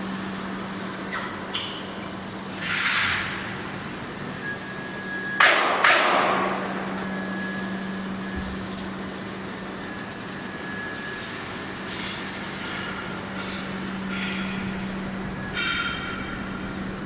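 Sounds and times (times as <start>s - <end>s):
welding machine humming: 0.0s - 17.0s
loud metallic clanks: 5.4s - 7.2s, 12.8s - 17.0s.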